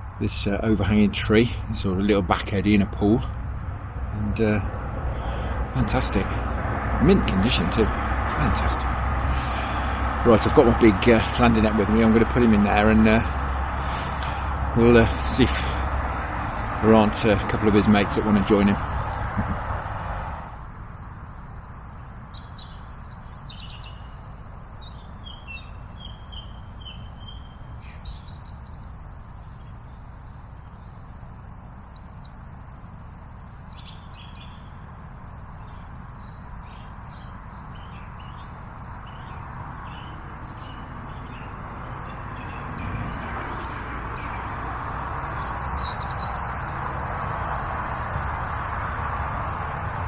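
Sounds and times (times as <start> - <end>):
low rushing noise: 0.0 - 22.9, 38.2 - 50.0
songbird chirps and trills: 0.0 - 50.0.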